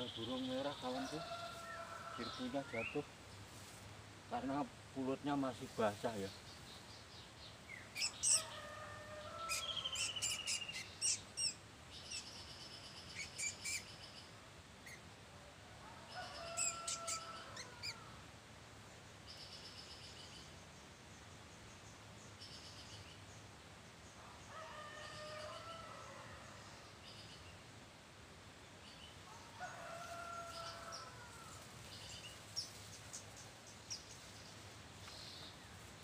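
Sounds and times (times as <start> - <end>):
birds chirping and calling: 7.7 - 8.6, 9.4 - 14.1, 16.3 - 18.0.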